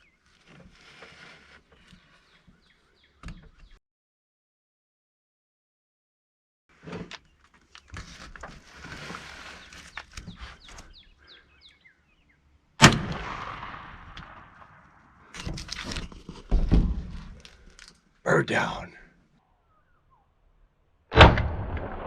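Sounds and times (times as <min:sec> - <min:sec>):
shotgun shot with echo: 0:12.8 - 0:14.8, 0:21.1 - 0:22.0.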